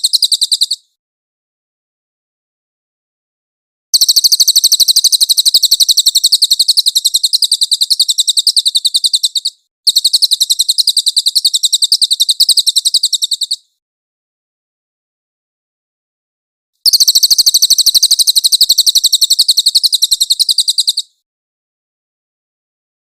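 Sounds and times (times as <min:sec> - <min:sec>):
songbird trilling: 0:00.0 - 0:00.9, 0:04.0 - 0:13.7, 0:16.8 - 0:21.2.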